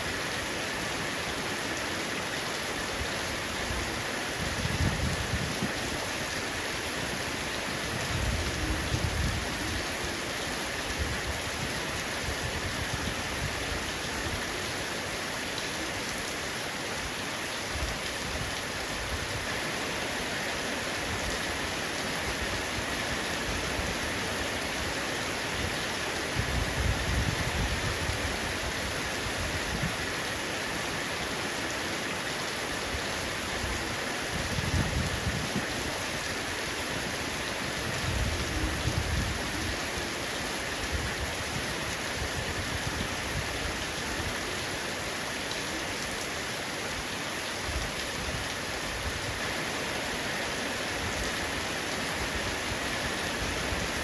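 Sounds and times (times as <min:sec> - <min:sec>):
heavy rain on a roof: 0:00.0 - 0:54.0.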